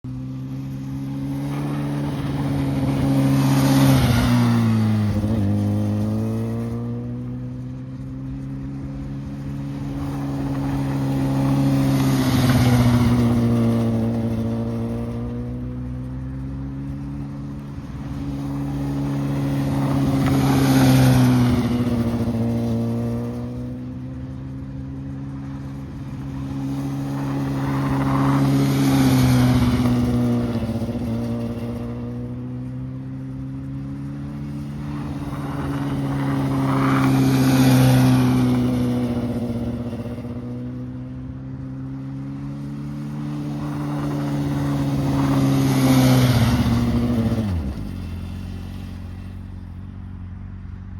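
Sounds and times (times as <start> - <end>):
motorcycle passing by: 0.0 - 50.9.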